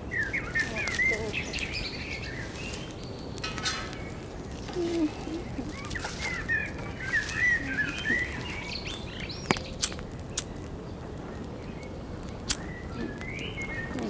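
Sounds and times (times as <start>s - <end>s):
low outdoor background noise: 0.0s - 14.0s
small birds chirping: 0.0s - 14.0s
sharp clicks: 9.4s - 10.7s, 11.8s - 13.5s.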